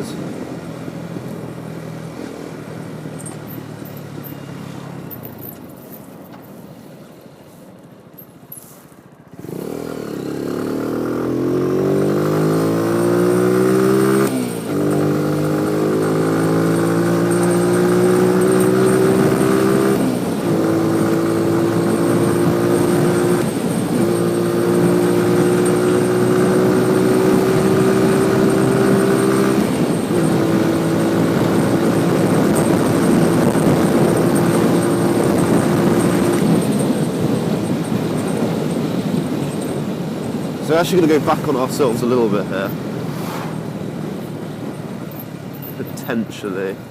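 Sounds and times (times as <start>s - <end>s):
motorcycle engine accelerating: 9.3s - 45.3s.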